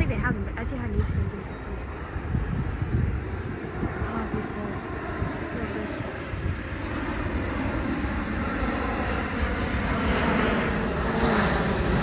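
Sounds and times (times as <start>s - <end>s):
jet airliner engine roar: 0.0s - 12.0s.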